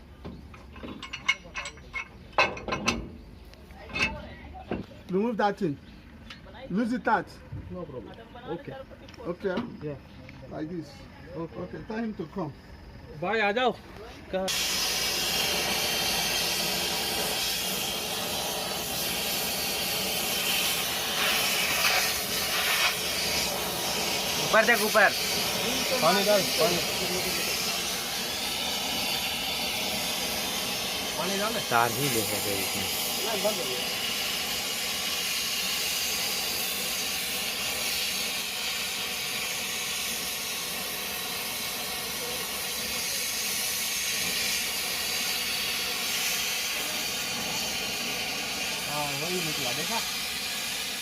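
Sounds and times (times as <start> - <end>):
loud hiss of rushing air: 14.4 - 51.0.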